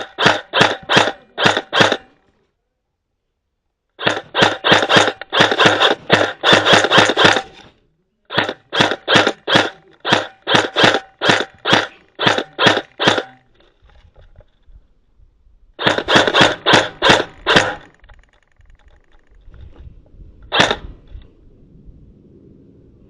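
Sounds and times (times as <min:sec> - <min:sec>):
airsoft gun shots: 0:00.0 - 0:02.2, 0:04.0 - 0:07.7, 0:08.3 - 0:13.5, 0:15.8 - 0:18.0, 0:20.5 - 0:21.0.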